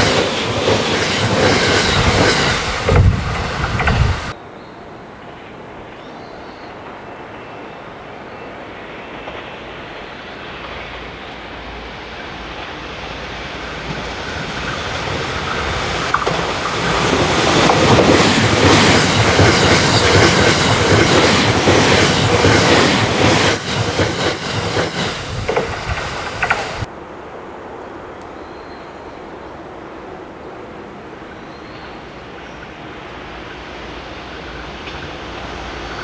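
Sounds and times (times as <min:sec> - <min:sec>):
electric train passing at speed: 0:00.0 - 0:28.2, 0:29.0 - 0:36.0
wheel clacks over rail joints: 0:13.8 - 0:26.9.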